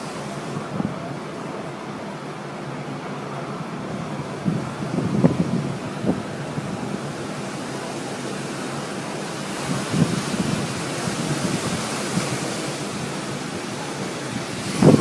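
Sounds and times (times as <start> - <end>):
storm wind roaring on microphone: 3.7 - 15.0.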